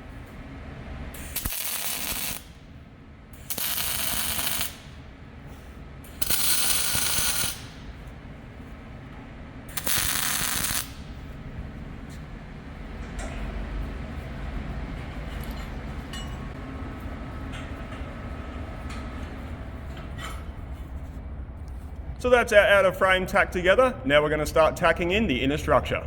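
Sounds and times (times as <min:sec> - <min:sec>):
welder crackling hiss: 0:01.2 - 0:02.4, 0:03.5 - 0:04.9, 0:09.7 - 0:11.0.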